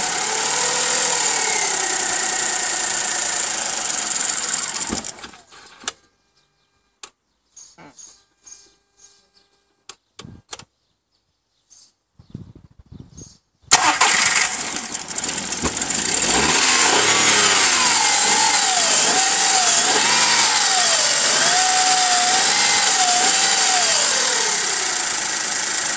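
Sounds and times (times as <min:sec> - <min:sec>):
car engine cranking and starting: 0:00.0 - 0:05.6, 0:13.7 - 0:25.9.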